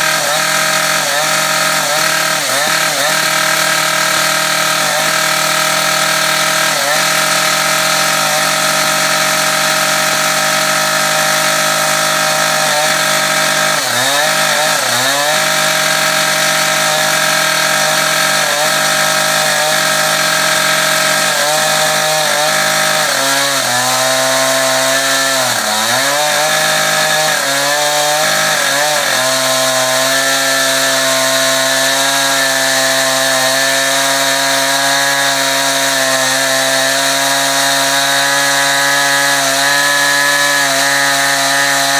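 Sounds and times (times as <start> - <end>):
chainsaw cutting concrete: 0.0 - 41.9.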